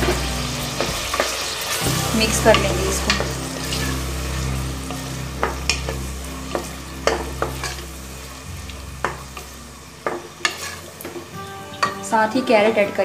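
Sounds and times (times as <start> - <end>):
low hum: 0.0 - 11.4
food sizzling in hot oil: 0.0 - 12.8
wooden spatula scraping pot: 8.7 - 11.3.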